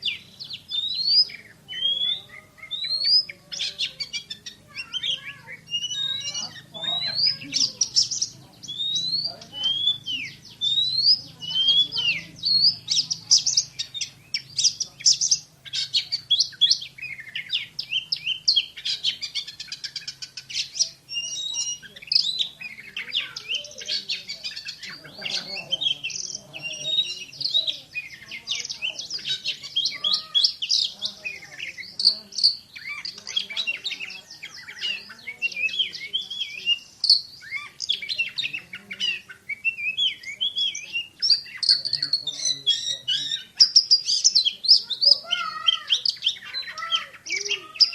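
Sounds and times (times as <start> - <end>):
bird singing rapid sharp notes: 0.0 - 47.9.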